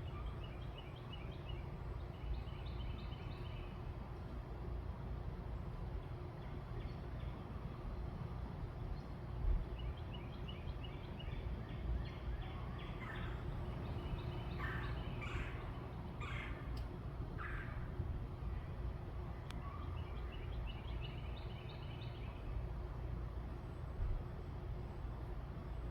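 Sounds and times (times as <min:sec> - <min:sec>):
birds chirping: 0:09.8 - 0:17.9
steady low rumble: 0:11.5 - 0:25.9.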